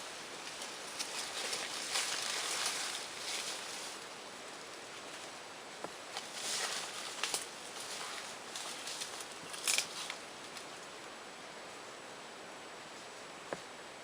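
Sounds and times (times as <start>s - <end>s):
rustling in dry leaves: 0.0s - 11.0s.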